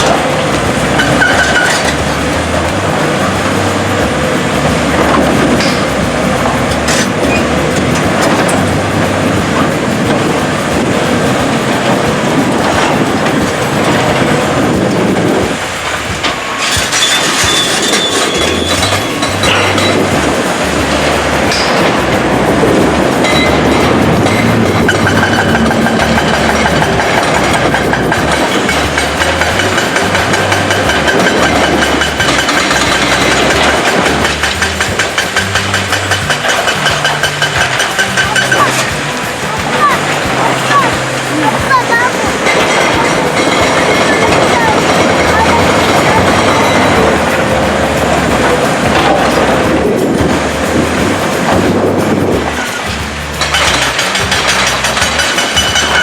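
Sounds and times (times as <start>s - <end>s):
metallic clanking and rattling: 0.0s - 56.0s
high squeal: 15.7s - 20.8s.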